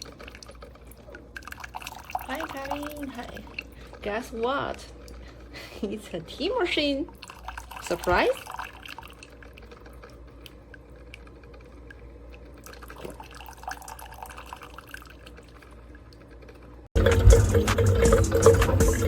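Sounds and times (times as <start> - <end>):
liquid dripping and trickling: 0.0 - 5.9, 6.5 - 19.0
music: 17.0 - 19.0.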